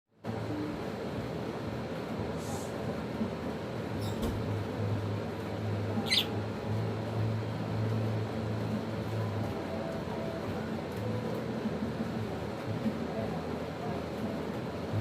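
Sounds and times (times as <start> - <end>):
steady low hum: 0.2 - 15.0
lovebirds squeaking: 6.0 - 6.4.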